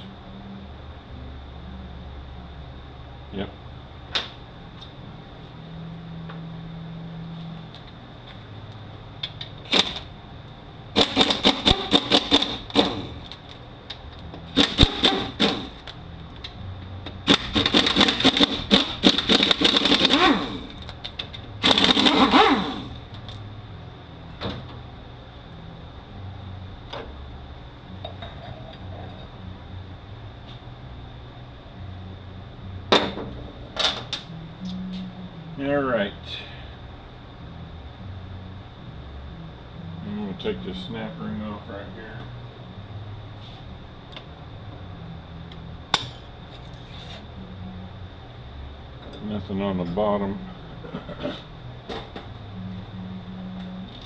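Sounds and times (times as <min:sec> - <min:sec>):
pneumatic impact wrench rattling: 0:09.7 - 0:10.1, 0:11.0 - 0:13.3, 0:14.5 - 0:15.8, 0:17.2 - 0:20.8, 0:21.6 - 0:23.0.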